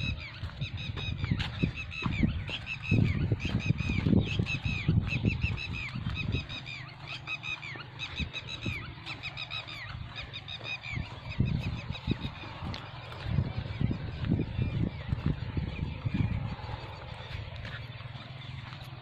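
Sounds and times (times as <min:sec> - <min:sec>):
flock of birds chirping: 0:00.0 - 0:19.0
low thumps and rumble: 0:00.0 - 0:19.0.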